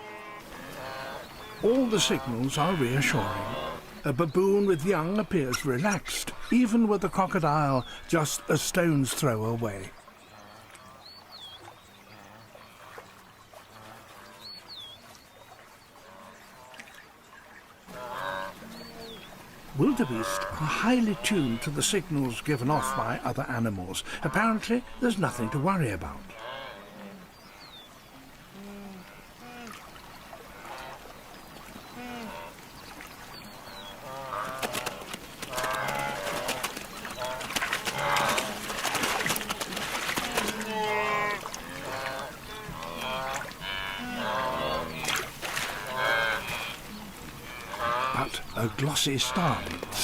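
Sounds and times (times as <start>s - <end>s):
wildebeest calling: 0.0s - 11.1s, 17.9s - 27.7s, 33.5s - 50.0s
water: 0.0s - 50.0s
water splashes: 0.0s - 50.0s.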